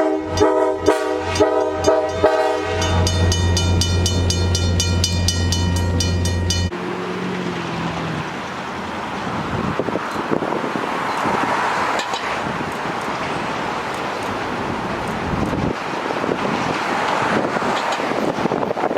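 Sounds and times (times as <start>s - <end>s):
train horn: 0.0s - 3.7s
steady rushing noise: 6.7s - 18.9s.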